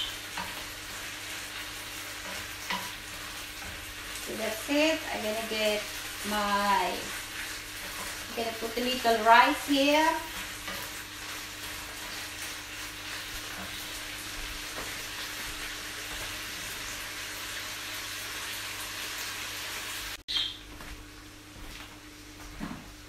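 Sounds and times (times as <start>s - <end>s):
meat sizzling in a pan: 0.0s - 20.2s.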